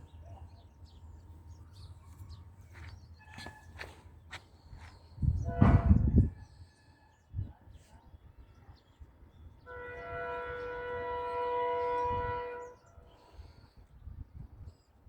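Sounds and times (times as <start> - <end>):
train horn blast: 5.4 - 6.2, 9.6 - 13.0.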